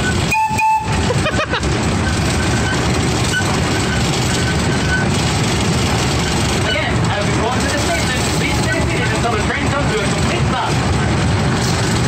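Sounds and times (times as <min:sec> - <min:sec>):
miniature train rumbling: 0:00.0 - 0:12.0
short high tone: 0:00.3 - 0:01.0.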